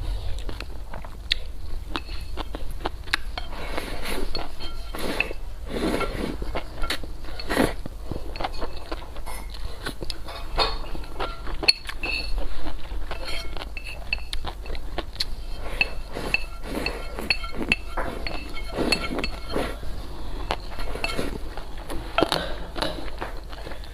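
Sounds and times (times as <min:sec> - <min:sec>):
chewing and mouth sounds: 0:00.1 - 0:23.9
tableware clinking: 0:04.3 - 0:12.5, 0:13.1 - 0:19.9, 0:20.6 - 0:21.6.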